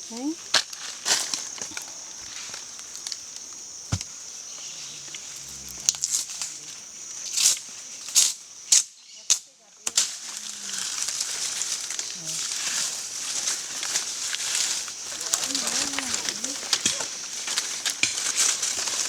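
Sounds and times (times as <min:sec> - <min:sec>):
crinkling rustles of plant material: 0:00.1 - 0:04.1, 0:10.0 - 0:19.0
high-pitched insect drone: 0:01.7 - 0:07.6, 0:14.4 - 0:17.2
faint voices: 0:15.0 - 0:18.0.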